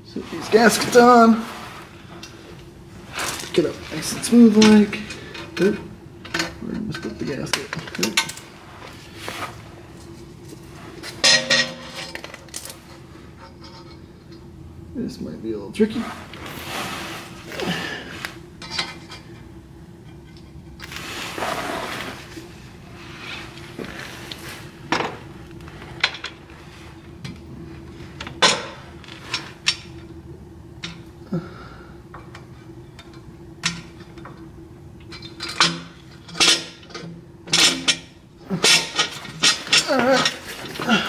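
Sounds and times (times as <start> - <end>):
metallic clinks and scrapes: 10.0 - 14.0.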